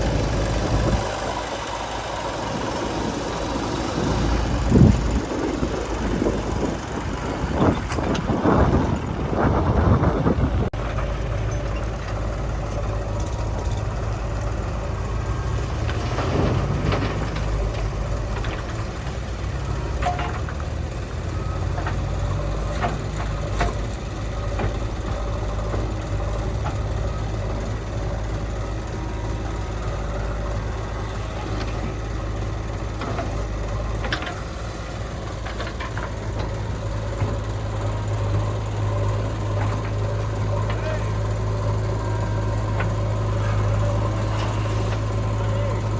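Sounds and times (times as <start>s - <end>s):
heavy diesel machinery running: 0.0s - 45.9s
knocks and clanks: 15.8s - 19.2s, 19.8s - 20.8s, 21.6s - 25.9s, 35.3s - 37.5s.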